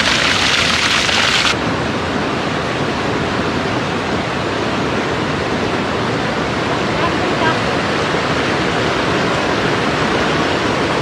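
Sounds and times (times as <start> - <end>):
water rushing: 0.0 - 1.6.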